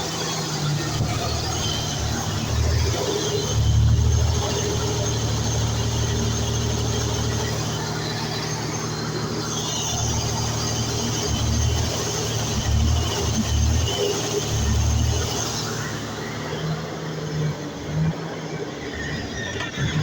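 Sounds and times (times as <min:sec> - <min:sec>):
generator engine running: 0:00.0 - 0:17.8.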